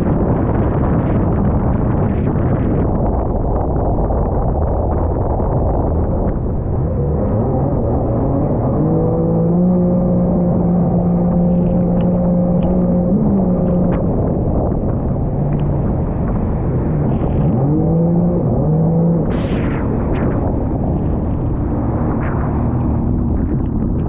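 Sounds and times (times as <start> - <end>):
steady rushing noise: 0.0 - 24.0
jet ski engine revving: 7.1 - 19.4.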